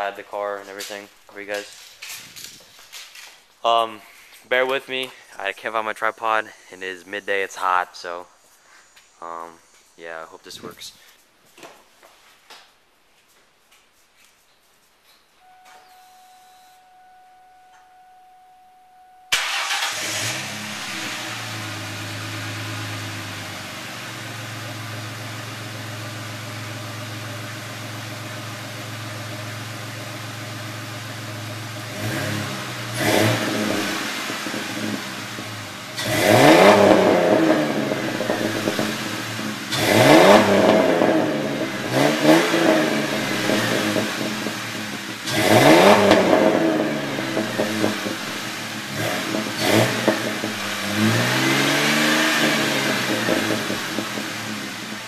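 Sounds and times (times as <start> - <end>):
faint steady tone: 15.3 - 19.4
car engine starting and idling: 18.9 - 55.0
car engine revving: 19.3 - 55.0.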